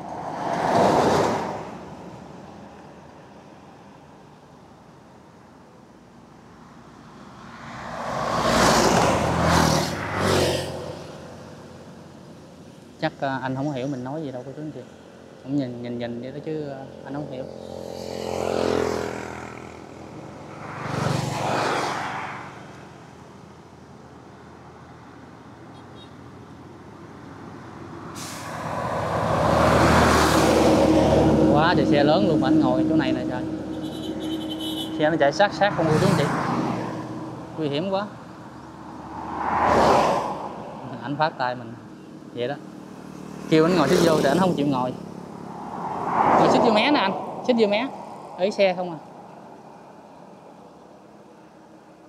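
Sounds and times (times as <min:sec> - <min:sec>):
road traffic passing: 0:00.0 - 0:52.0
large vehicle approaching: 0:27.9 - 0:50.3.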